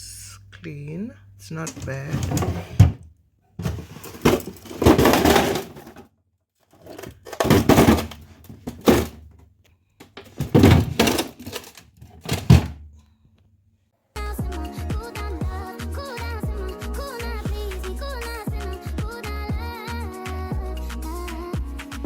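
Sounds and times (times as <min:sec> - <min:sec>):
kitchen items clattering: 0:01.7 - 0:03.0, 0:03.6 - 0:06.1, 0:06.7 - 0:09.4, 0:10.1 - 0:12.8.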